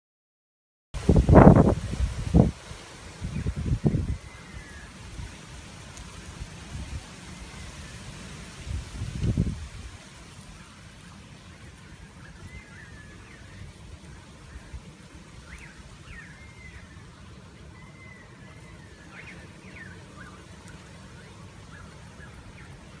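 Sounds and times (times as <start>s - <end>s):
faint bird chirps: 10.4s - 23.0s
short whistled bird calls: 12.1s - 13.7s, 15.4s - 17.0s.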